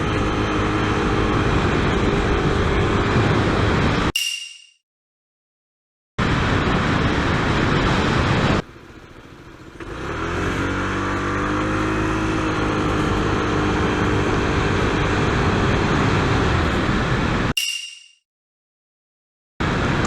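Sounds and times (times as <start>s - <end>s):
scooter engine accelerating: 0.0s - 3.8s, 8.8s - 16.9s.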